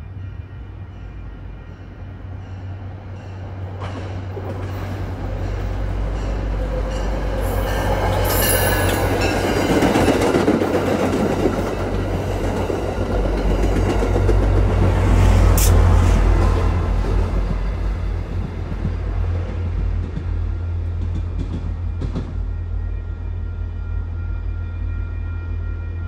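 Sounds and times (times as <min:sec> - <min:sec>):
train passing rumble: 0:00.0 - 0:26.0
wheels squealing on rails: 0:02.4 - 0:10.5.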